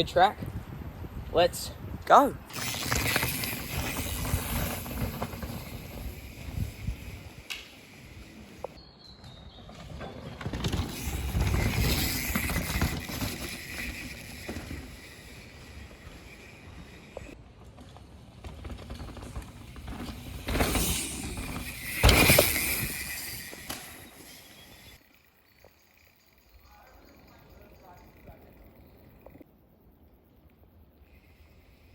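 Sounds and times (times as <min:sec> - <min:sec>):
wind on microphone: 0:00.0 - 0:04.9
bike tyre rumble on dirt: 0:02.5 - 0:29.4.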